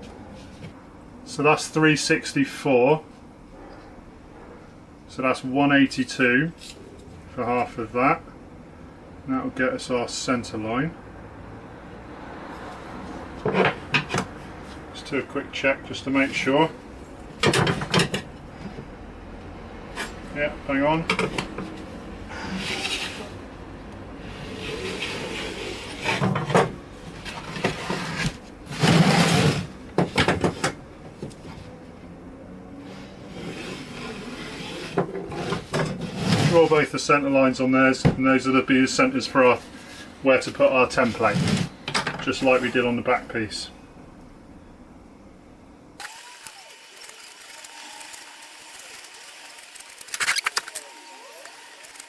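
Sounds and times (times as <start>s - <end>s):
quiet workshop sounds: 0.0s - 52.0s
wood scraping and knocking: 24.6s - 31.6s
sharp ratchet-like clicks: 46.0s - 52.0s.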